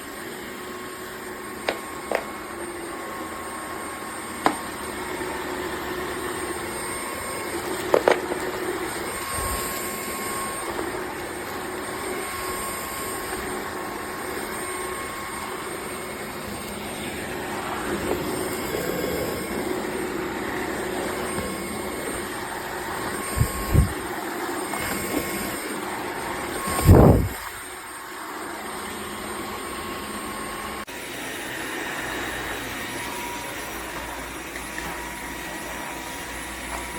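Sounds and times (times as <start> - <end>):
vacuum motor running: 0.0 - 36.9.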